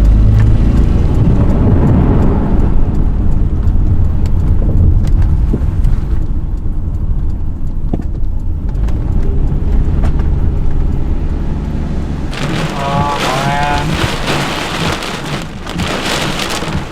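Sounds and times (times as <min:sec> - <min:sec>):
raindrop ticks: 0:00.0 - 0:16.9
vehicle rumble: 0:00.0 - 0:16.9
heavy rain hiss: 0:12.3 - 0:16.9.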